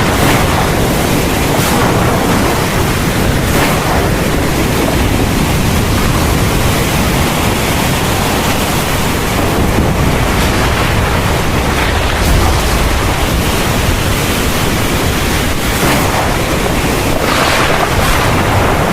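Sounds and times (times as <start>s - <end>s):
heavy rain hissing: 0.0s - 18.9s
deep low rumble: 9.4s - 18.9s.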